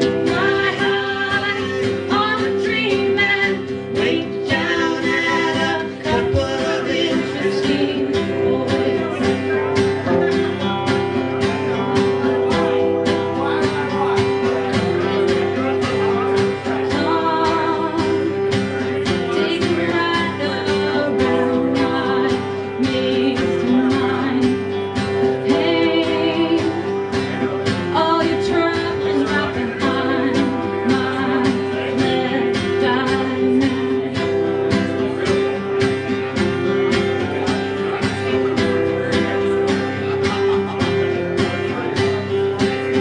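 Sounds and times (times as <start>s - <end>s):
guitar strumming: 0.0s - 43.0s
person singing: 0.0s - 43.0s.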